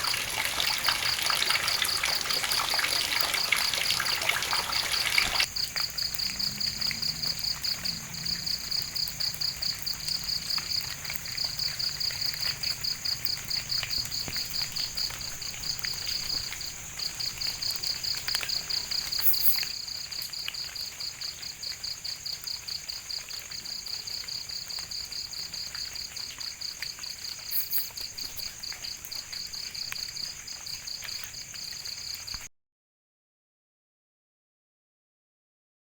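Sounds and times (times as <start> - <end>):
high insect whine: 0.0 - 19.7
crickets chirping: 0.0 - 32.5.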